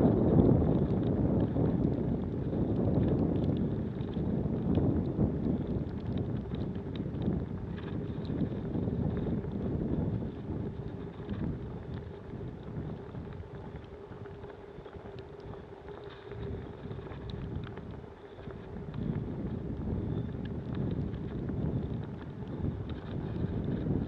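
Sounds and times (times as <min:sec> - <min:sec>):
faint steady hum: 0:00.0 - 0:24.0
wind buffeting microphone: 0:00.0 - 0:24.0.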